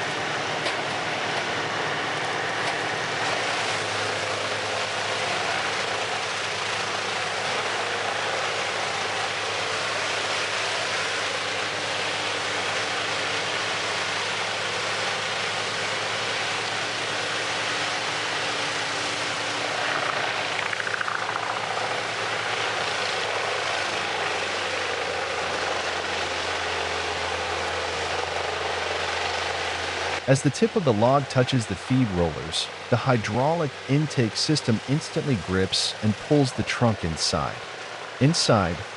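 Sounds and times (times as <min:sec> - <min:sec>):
wood chipper engine running: 0:00.0 - 0:38.9
falling whine: 0:19.1 - 0:24.4, 0:27.8 - 0:38.9.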